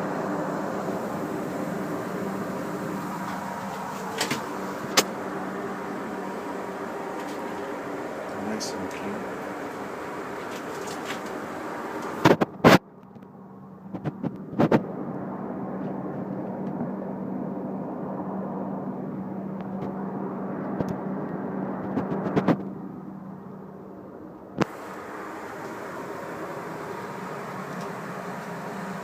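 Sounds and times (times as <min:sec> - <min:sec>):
airplane cabin drone: 0:00.0 - 0:29.0.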